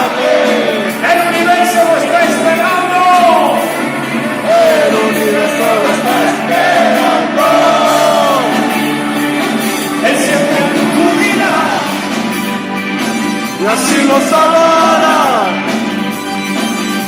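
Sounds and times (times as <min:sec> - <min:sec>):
live pop-rock band: 0:00.0 - 0:17.0
person singing: 0:02.9 - 0:12.2.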